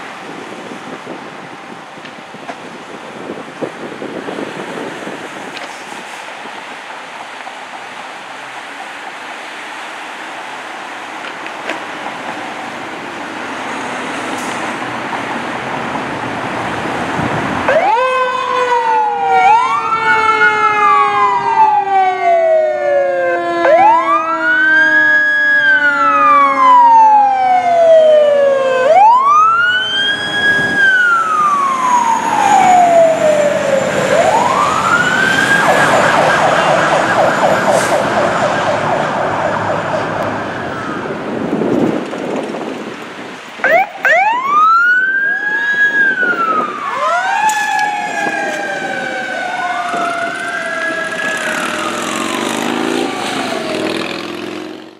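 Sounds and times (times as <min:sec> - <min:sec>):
fire engine siren wailing: 0:15.8 - 0:43.0, 0:43.6 - 0:54.8
siren fast warble: 0:17.7 - 0:41.2, 0:43.6 - 0:54.2.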